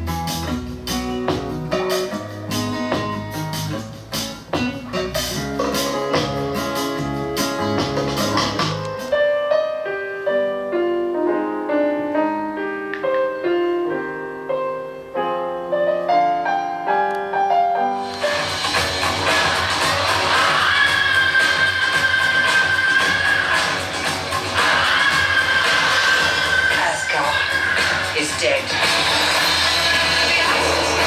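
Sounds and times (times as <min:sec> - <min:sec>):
music with bass and drums: 0:00.0 - 0:09.1, 0:18.2 - 0:26.7, 0:27.5 - 0:31.0
solo piano: 0:04.6 - 0:18.6.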